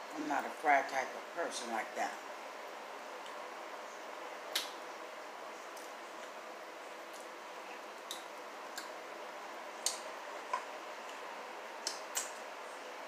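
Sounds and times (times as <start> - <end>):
steady background hiss: 0.0 - 13.0
person chewing with wet smacks: 7.0 - 9.0, 9.7 - 12.5.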